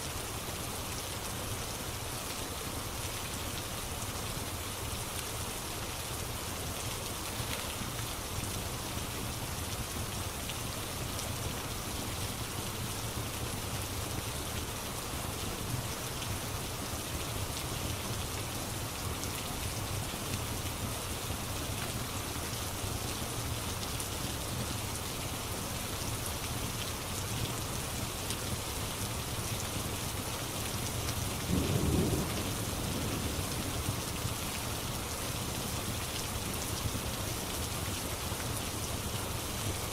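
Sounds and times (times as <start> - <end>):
steady rain: 0.0 - 39.9
faint fire crackles: 0.3 - 39.9
thunder rumbling: 31.5 - 33.9.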